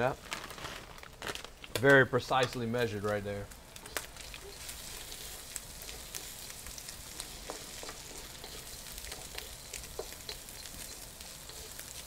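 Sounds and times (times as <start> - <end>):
food sizzling in a wok: 2.3 - 12.0
wooden spatula scraping a pan: 4.2 - 12.0.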